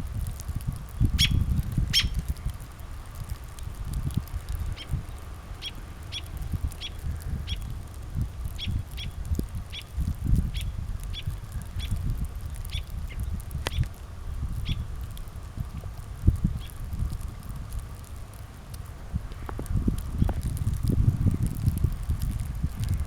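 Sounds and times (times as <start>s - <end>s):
low uneven rumble: 0.0s - 23.0s
small bird chirping: 1.0s - 2.2s.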